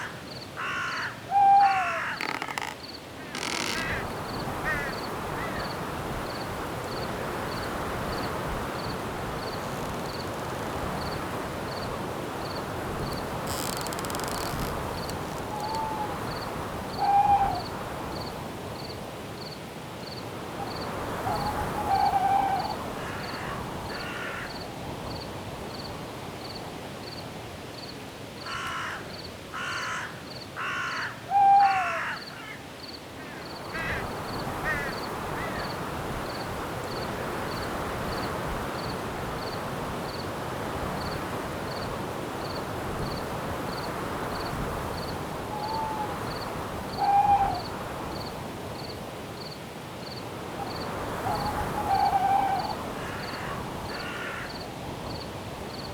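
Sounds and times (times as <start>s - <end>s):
bird harsh caw-like calls: 0.0s - 5.7s, 22.6s - 24.6s, 28.5s - 32.6s, 33.2s - 35.7s, 51.3s - 54.6s
wind in the trees: 0.0s - 28.4s, 32.8s - 55.9s
crickets chirping: 0.0s - 55.9s.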